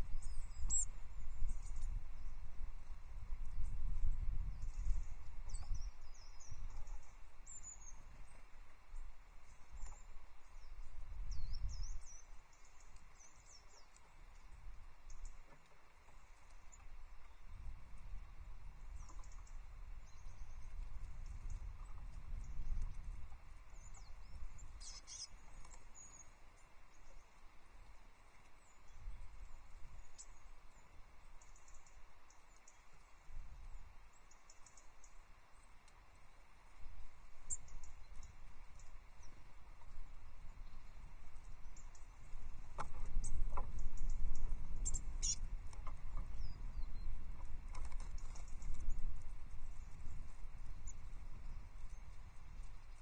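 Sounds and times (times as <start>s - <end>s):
small birds chirping: 0.0s - 2.6s, 3.4s - 53.0s
wind rumble on microphone: 0.0s - 53.0s
taps and scratches on nest: 47.7s - 48.8s.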